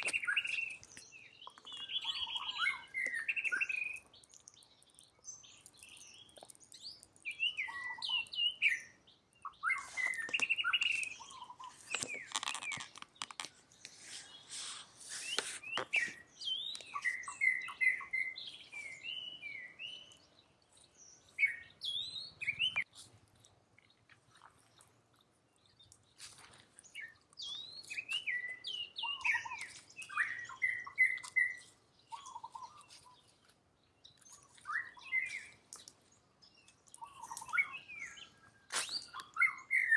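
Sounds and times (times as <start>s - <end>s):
high-pitched chirping calls: 0.0s - 13.4s, 27.0s - 33.2s, 36.9s - 39.9s
rustling and crackling: 9.8s - 16.2s.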